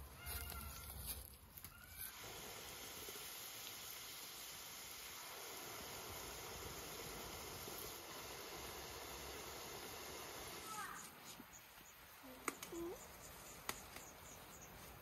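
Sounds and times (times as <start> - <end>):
potatoes sizzling in hot oil: 1.9 - 11.0.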